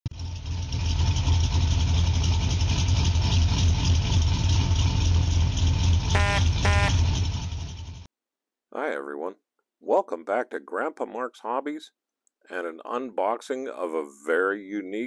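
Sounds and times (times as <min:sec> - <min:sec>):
car engine idling: 0:00.1 - 0:08.1
car horn honks: 0:06.1 - 0:07.3.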